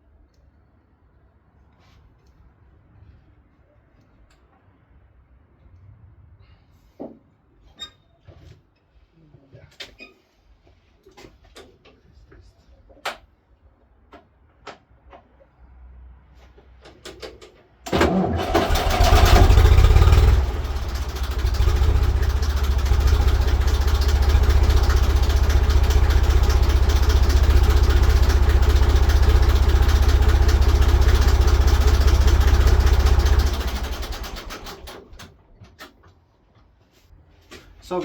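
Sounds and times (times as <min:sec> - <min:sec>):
tractor diesel engine starting: 0:17.9 - 0:35.4.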